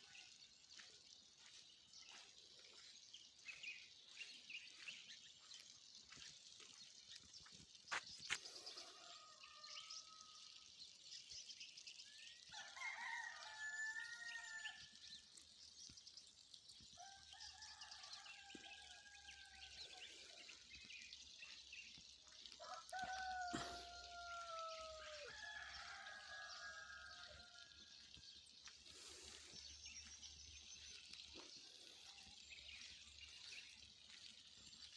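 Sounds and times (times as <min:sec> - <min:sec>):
high chirping background: 0:00.0 - 0:08.7, 0:24.2 - 0:34.9
roosters crowing faintly: 0:22.6 - 0:28.2.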